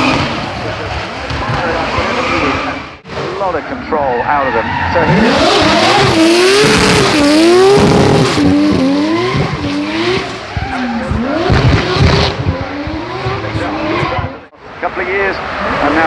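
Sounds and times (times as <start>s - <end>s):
race car engine revving: 0.0s - 14.6s
tyre squeal: 4.0s - 11.5s.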